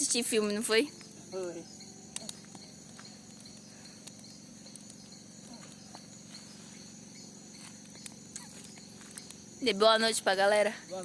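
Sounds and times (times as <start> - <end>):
crickets chirring: 0.0 - 11.0
faint clicks: 2.1 - 6.1.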